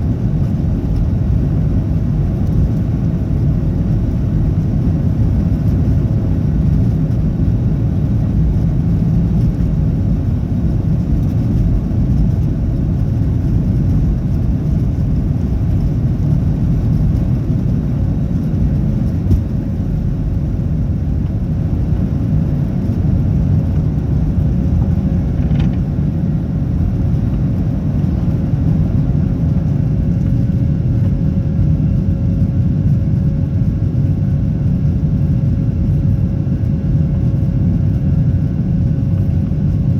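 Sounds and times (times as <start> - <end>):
aircraft cabin engine rumble: 0.0 - 39.9.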